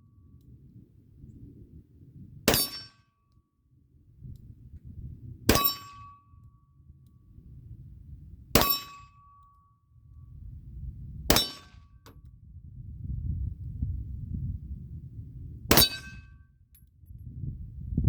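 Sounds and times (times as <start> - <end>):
steel target ringing: 2.5 - 3.0, 5.5 - 6.1, 15.7 - 16.2.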